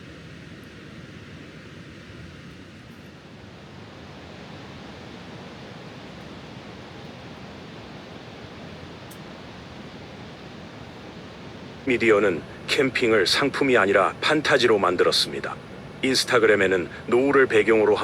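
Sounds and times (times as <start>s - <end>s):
river water rushing: 11.2s - 18.0s.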